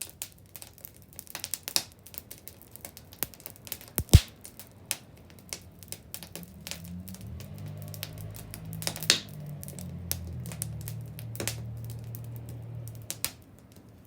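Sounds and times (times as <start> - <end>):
bonfire crackling and snapping: 0.0 - 14.0
loud fire pop: 4.0 - 4.3.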